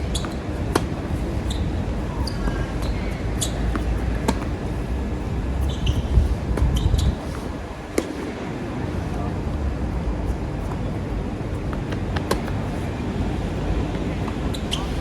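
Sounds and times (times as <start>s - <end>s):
tennis balls struck and bouncing: 0.0s - 5.0s, 5.6s - 8.4s, 11.7s - 12.8s
wind buffeting microphone: 0.0s - 15.0s.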